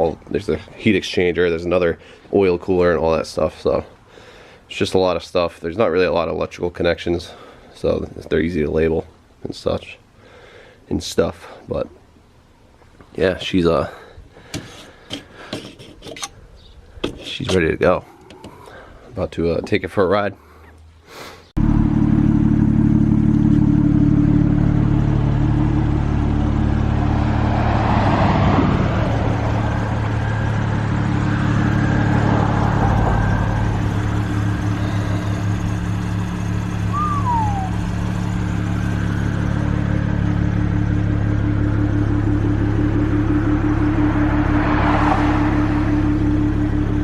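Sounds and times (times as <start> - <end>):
car engine humming: 21.6 - 47.0
high falling squeak: 36.2 - 39.2.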